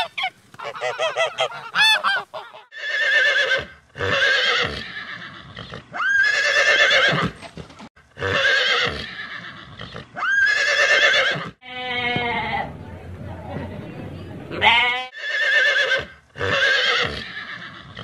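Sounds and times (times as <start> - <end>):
horse whinnying: 2.7 - 12.2, 14.6 - 18.0.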